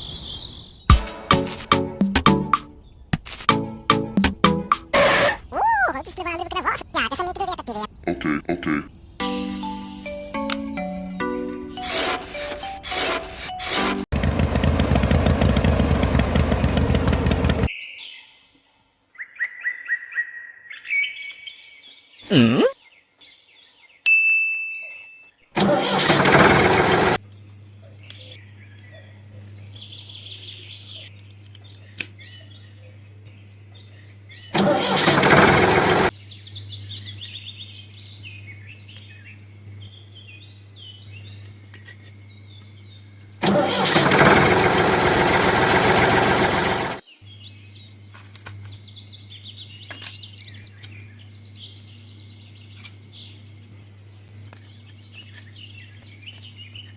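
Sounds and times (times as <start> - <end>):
birds chirping: 0.0 - 3.2, 3.9 - 12.6, 15.4 - 24.1, 27.2 - 44.1, 46.5 - 56.9
tractor engine humming: 9.4 - 17.7, 25.6 - 27.6, 34.5 - 36.1, 42.6 - 47.0
loud noisy bursts: 25.6 - 27.2, 34.5 - 36.1, 43.4 - 47.0.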